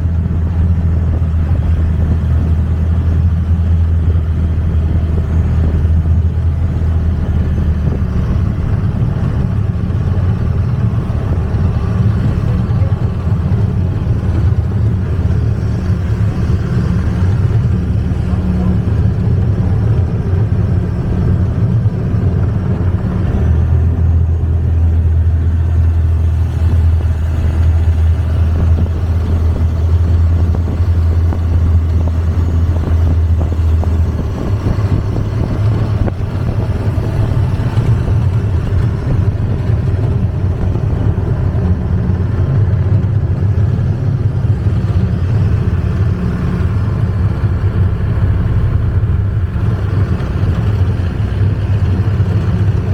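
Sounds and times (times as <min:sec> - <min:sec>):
boat engine droning: 0:00.0 - 0:52.9.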